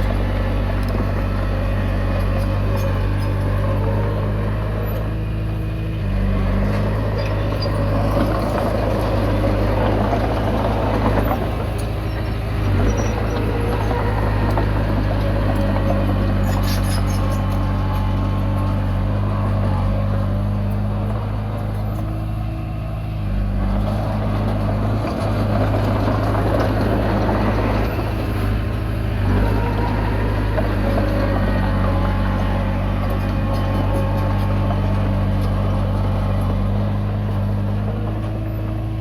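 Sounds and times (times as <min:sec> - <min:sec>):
bulldozer diesel engine running: 0:00.0 - 0:39.0.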